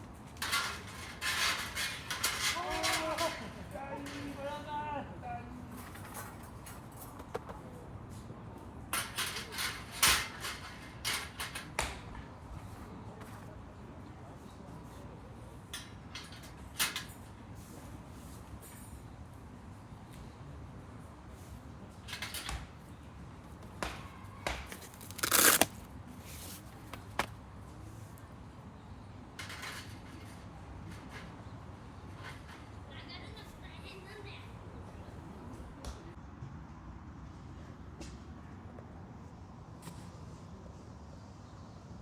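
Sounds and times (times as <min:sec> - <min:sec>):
knocks and clatters of gear: 0:24.5 - 0:27.4
handling rustle: 0:24.6 - 0:27.4.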